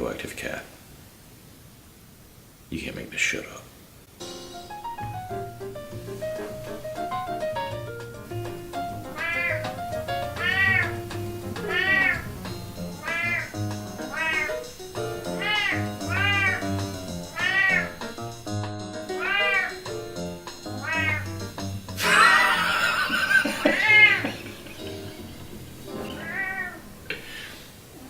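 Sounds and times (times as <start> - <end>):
background music: 4.1 - 27.5
cat meowing: 9.1 - 18.1, 19.1 - 19.9, 20.8 - 21.4, 23.6 - 24.3, 26.0 - 26.9.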